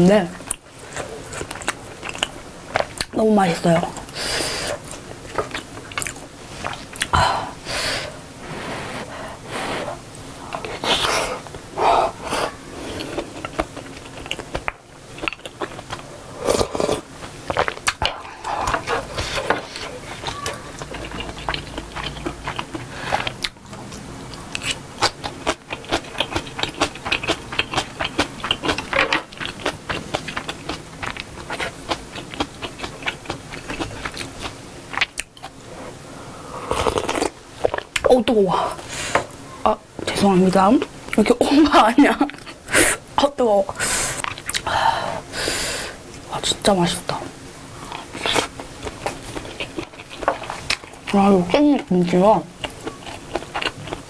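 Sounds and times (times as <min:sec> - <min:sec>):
chewing and wet mouth sounds: 0:00.4 - 0:07.2, 0:10.4 - 0:35.6, 0:44.2 - 0:44.7, 0:47.8 - 0:54.0.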